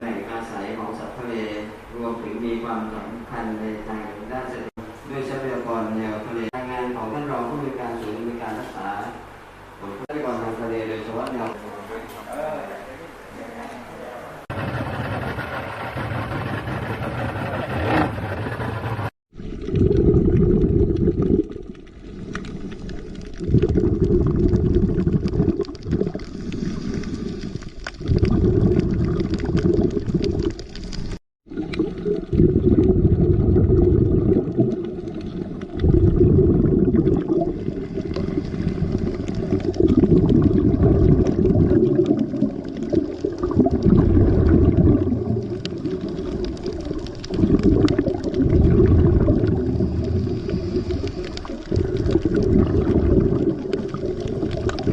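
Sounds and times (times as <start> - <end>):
underwater bubble rumbles: 16.3 - 54.9.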